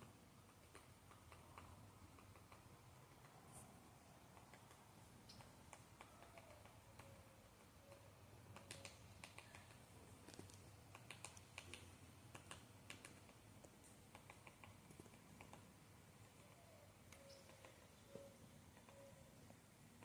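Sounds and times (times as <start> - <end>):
faint crackling clicks: 8.5 - 15.6.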